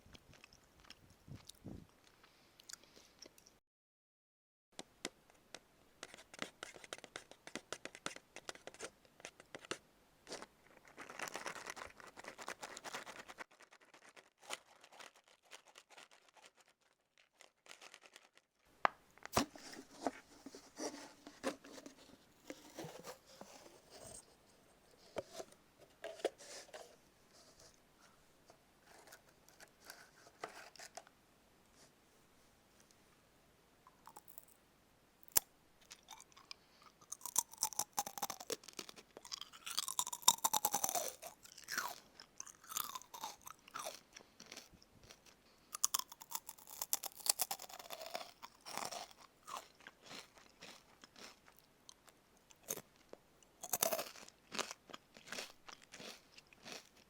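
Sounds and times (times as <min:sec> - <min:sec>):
crunching fried food being chewed: 0:00.1 - 0:03.6, 0:10.3 - 0:18.4, 0:34.0 - 0:34.5, 0:35.3 - 0:57.0.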